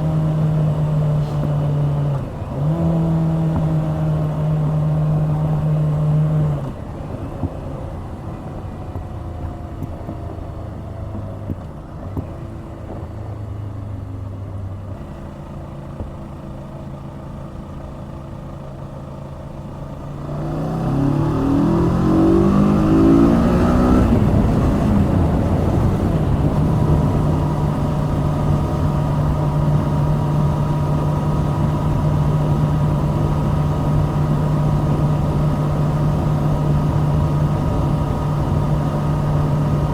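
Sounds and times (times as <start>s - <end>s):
motorcycle engine accelerating: 0.0s - 6.9s, 19.9s - 39.9s.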